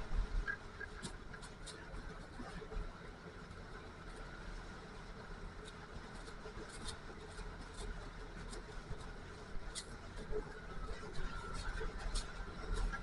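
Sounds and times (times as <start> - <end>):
snowmobile engine running low: 5.1 - 13.0.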